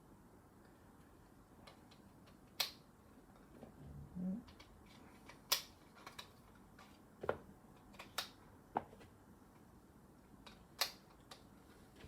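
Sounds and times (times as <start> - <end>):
plastic bricks clicking together: 4.5 - 6.9.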